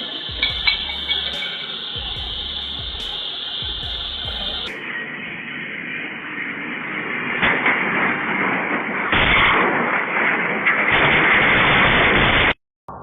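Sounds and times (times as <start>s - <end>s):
sharp bang: 0.0s - 5.1s.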